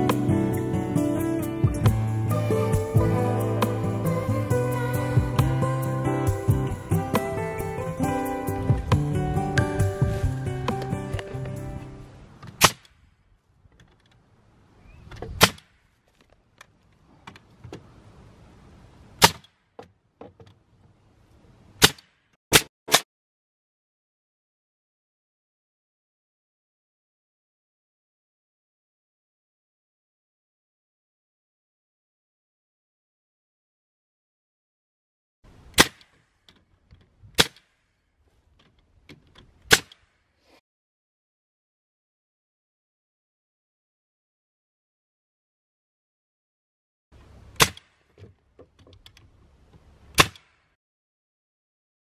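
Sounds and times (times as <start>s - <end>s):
background music: 0.0s - 12.1s
nail gun firing: 35.8s - 36.2s, 37.4s - 37.8s, 47.6s - 48.1s, 50.2s - 50.7s
knocks of wood and tool handling: 47.6s - 50.6s.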